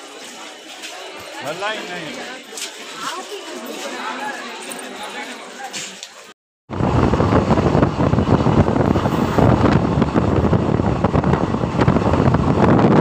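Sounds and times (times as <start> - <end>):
moving train coach running noise: 6.7 - 13.0
wind buffeting microphone: 6.7 - 13.0.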